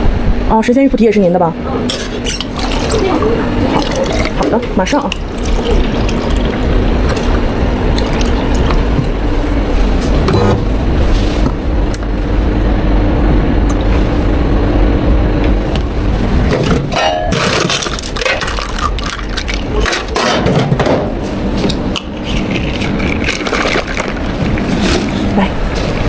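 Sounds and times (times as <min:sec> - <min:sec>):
low motor hum: 0:00.0 - 0:26.0
rush of running liquid: 0:02.5 - 0:09.4, 0:22.3 - 0:25.4.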